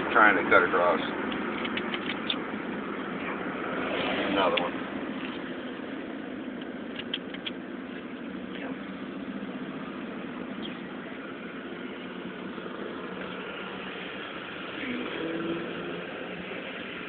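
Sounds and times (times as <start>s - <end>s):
car engine and road hum: 0.0s - 17.0s
faint clicks: 6.6s - 7.6s.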